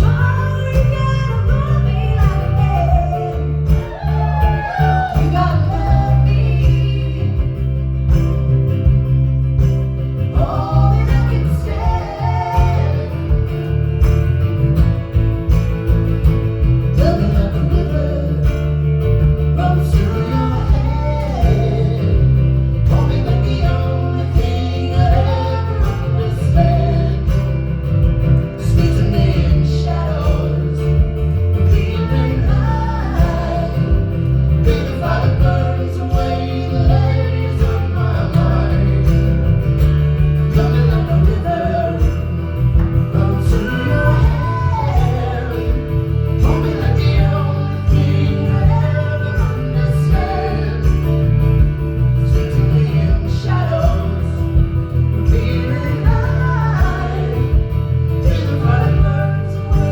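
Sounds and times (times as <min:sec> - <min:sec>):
person singing: 0:00.0 - 0:07.8, 0:19.5 - 0:27.7, 0:40.2 - 0:51.4, 0:52.3 - 0:59.9
guitar: 0:00.0 - 0:59.9.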